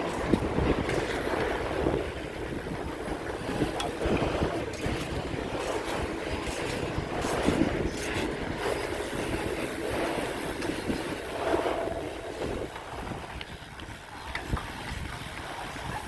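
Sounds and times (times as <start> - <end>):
road and traffic noise: 0.0 - 16.0
wind rushing over microphone: 0.0 - 16.0.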